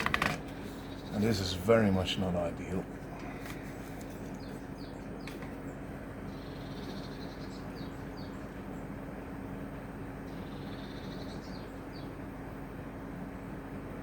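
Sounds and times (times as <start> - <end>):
background hum and hiss: 0.0 - 14.0
high bird chirps: 10.3 - 12.1.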